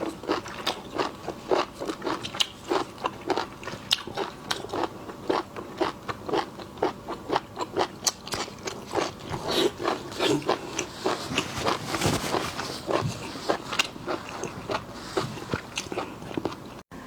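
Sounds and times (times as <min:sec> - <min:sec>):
crunchy bites of seafood: 0:00.0 - 0:11.8.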